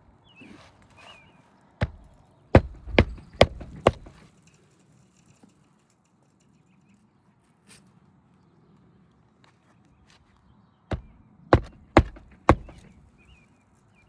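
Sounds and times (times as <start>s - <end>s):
nails driven into roof shingles: 1.8s - 4.3s, 10.9s - 13.1s.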